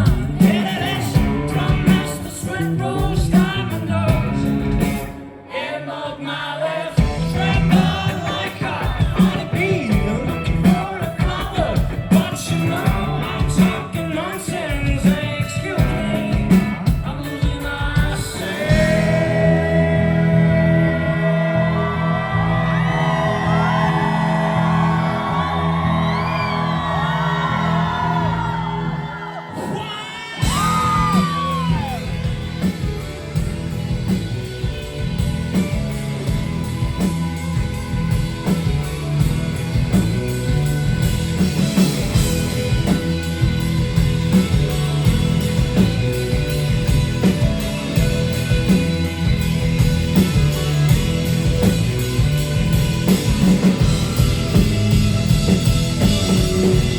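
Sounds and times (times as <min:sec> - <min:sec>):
rock band playing: 0:00.0 - 0:06.0, 0:07.0 - 0:56.9
person singing: 0:05.5 - 0:32.2.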